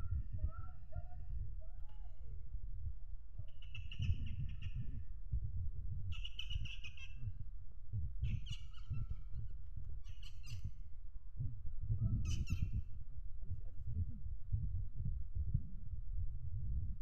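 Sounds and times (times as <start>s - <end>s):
bird trilled calls: 8.2s - 9.2s, 10.0s - 10.7s.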